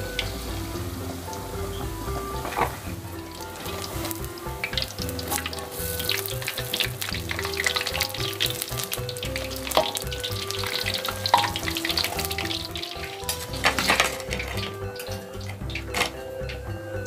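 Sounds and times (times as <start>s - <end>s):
deep-frying sizzle and crackle: 0.0s - 17.0s.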